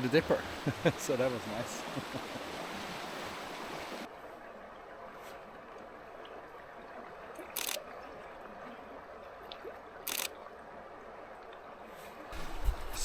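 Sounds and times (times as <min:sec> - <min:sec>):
stream rushing: 0:00.0 - 0:13.0
camera shutter firing: 0:07.6 - 0:07.8, 0:10.1 - 0:10.3.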